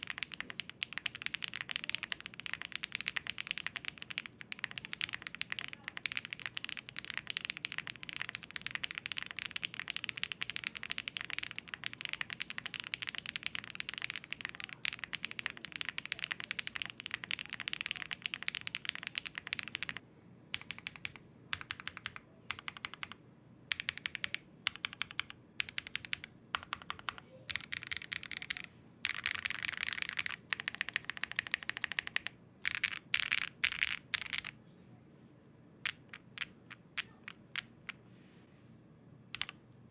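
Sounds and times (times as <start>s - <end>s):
mechanical keyboard typing: 0.0s - 34.6s, 35.8s - 38.0s, 39.3s - 39.6s.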